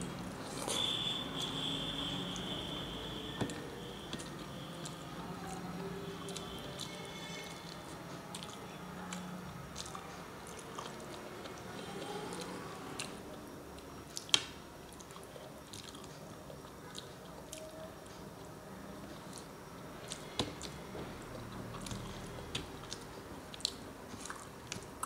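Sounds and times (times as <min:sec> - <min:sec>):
chewing and wet mouth sounds: 0:04.1 - 0:25.0.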